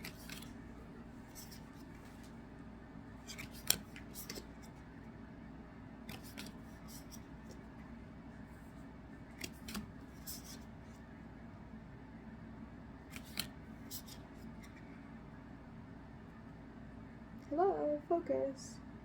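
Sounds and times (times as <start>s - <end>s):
cards snapping and rustling: 0.0s - 0.7s, 3.2s - 4.8s, 6.0s - 7.7s, 9.2s - 10.7s, 13.1s - 14.9s.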